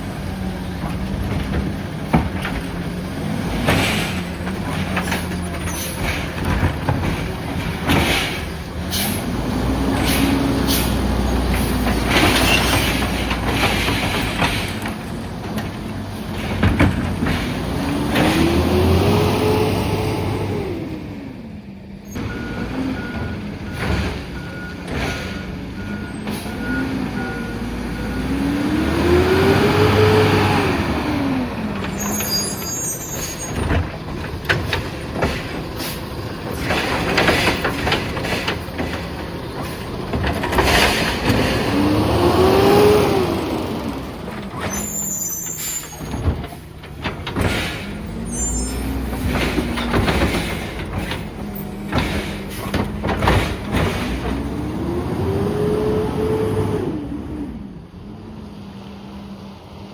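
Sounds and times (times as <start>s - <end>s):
truck diesel engine revving: 0.0s - 59.9s.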